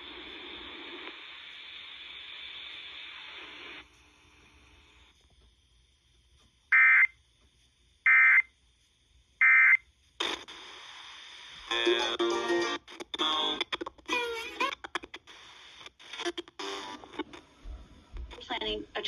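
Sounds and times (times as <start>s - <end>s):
radio hiss: 0.0s - 5.4s, 8.0s - 8.4s, 9.4s - 17.7s.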